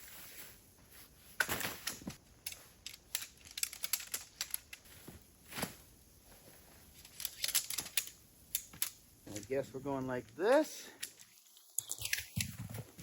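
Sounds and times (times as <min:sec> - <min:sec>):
tent fabric rustling: 0:00.0 - 0:02.8, 0:04.8 - 0:07.4
tent poles clicking: 0:01.3 - 0:09.7, 0:10.3 - 0:13.0.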